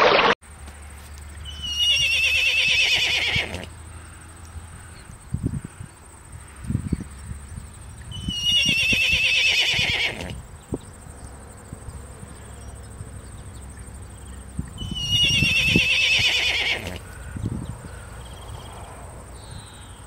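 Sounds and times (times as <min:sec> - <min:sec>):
horse whinnying: 0:01.5 - 0:03.7, 0:08.2 - 0:10.4, 0:14.8 - 0:17.1.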